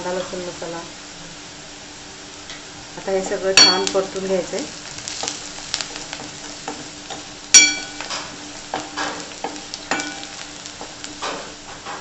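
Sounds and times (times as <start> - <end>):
spices sizzling in hot oil: 0.0 - 12.0
spoon clinking against pan: 7.5 - 8.2.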